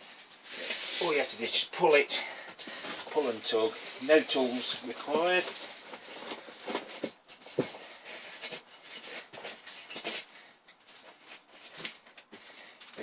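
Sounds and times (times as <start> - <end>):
tyre scraping and knocking: 5.3 - 10.3.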